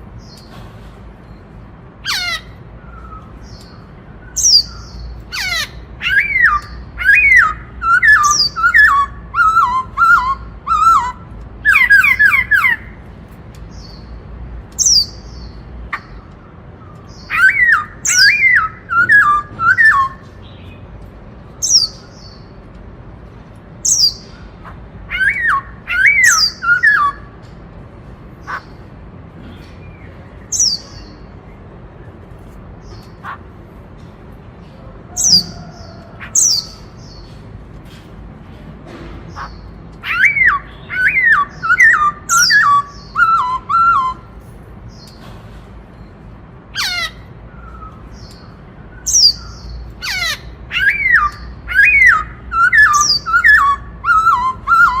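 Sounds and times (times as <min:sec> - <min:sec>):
bird singing whistled phrases: 0:17.2 - 0:20.3, 0:25.1 - 0:27.3, 0:40.0 - 0:44.3, 0:50.1 - 0:55.0.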